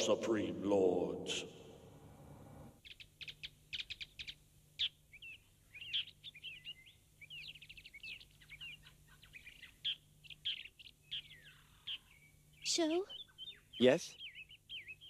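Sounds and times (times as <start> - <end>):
faint low hum: 0.0 - 2.8
small birds chirping: 2.8 - 15.0.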